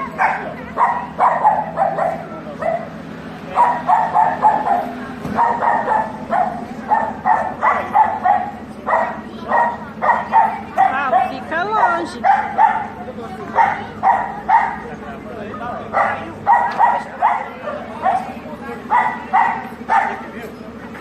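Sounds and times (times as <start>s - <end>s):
dog barking and yipping: 0.0s - 2.9s, 3.5s - 14.9s, 15.9s - 20.3s.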